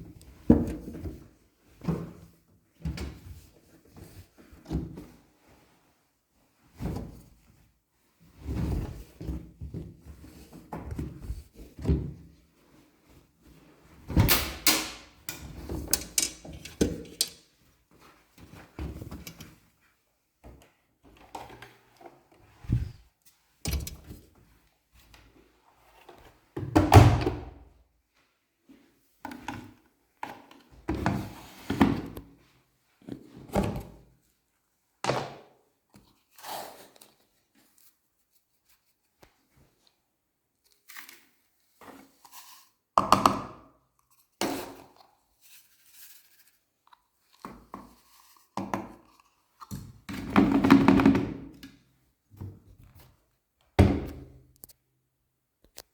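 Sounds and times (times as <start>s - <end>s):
laundry rustling: 22.4s - 23.1s.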